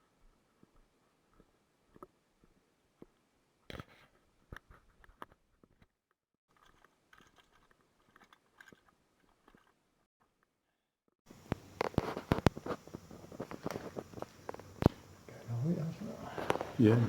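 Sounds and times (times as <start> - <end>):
faint clicks: 11.3 - 15.6, 16.2 - 16.8
rustling and crunching: 11.3 - 17.0.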